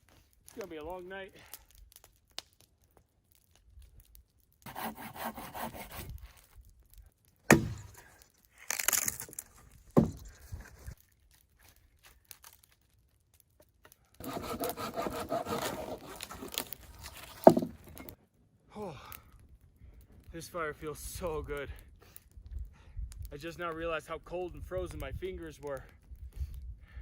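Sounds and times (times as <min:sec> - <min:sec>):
hand saw cutting wood: 0:04.7 - 0:06.1, 0:07.5 - 0:08.0, 0:14.2 - 0:18.1.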